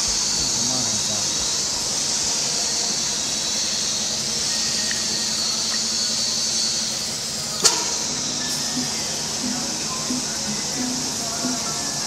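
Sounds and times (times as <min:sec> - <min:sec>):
drilling machine hissing: 0:00.0 - 0:12.0
sharp click: 0:07.6 - 0:08.6
low hum: 0:07.7 - 0:12.0.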